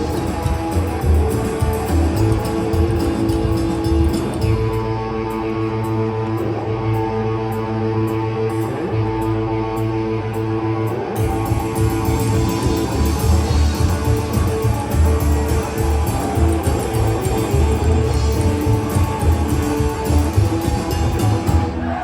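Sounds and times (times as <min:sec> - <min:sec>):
drums: 0:00.0 - 0:05.0, 0:11.2 - 0:22.0
bass guitar: 0:00.0 - 0:22.0
electric guitar: 0:00.0 - 0:22.0.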